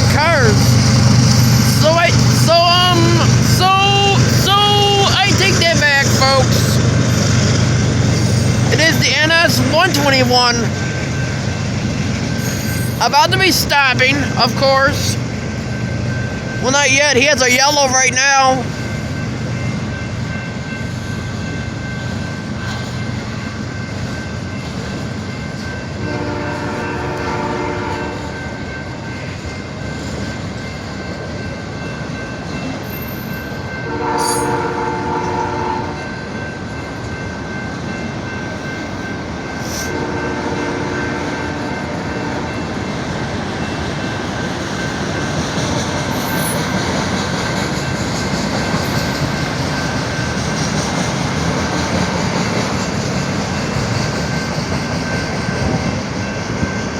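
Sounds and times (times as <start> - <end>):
freight train rumbling: 0.0 - 56.9
locomotive air horn blasts: 26.1 - 28.3, 33.8 - 36.0, 39.6 - 42.5.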